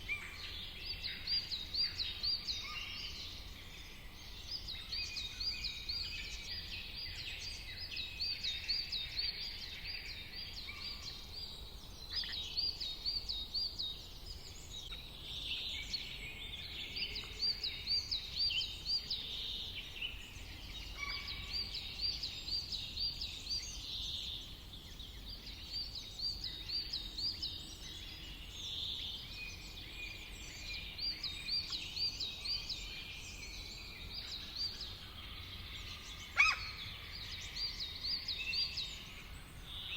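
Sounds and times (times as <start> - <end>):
faint low background noise: 0.0 - 39.9
birds calling softly: 8.5 - 39.9.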